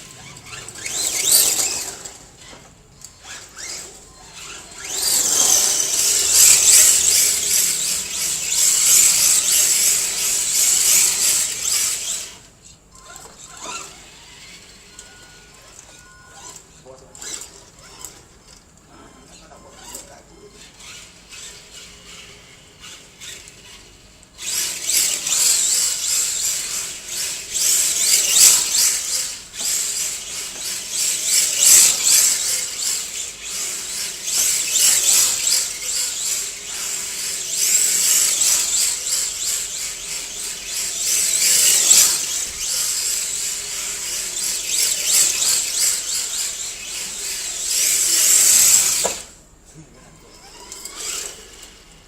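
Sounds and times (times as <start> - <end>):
electric toy car motor whine: 0.0 - 49.4, 50.0 - 52.0.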